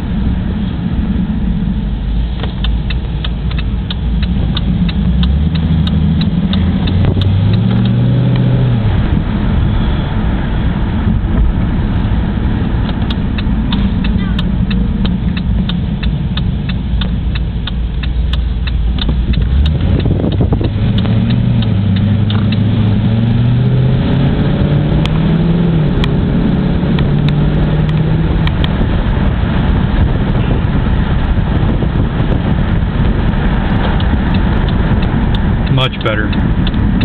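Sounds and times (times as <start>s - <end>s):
car engine idling and accelerating: 0.0s - 37.0s
light fast engine ticking: 2.4s - 8.0s, 12.8s - 23.0s, 27.9s - 37.0s.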